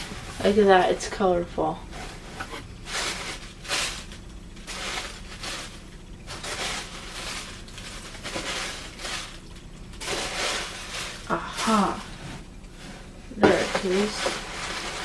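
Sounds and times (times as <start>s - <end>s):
packaging rustling and crinkling: 1.8s - 12.2s, 13.5s - 15.0s.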